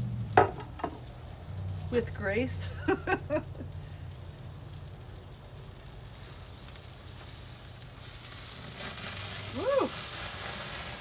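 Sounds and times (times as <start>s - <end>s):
chicken sizzling on grill: 0.0s - 11.0s.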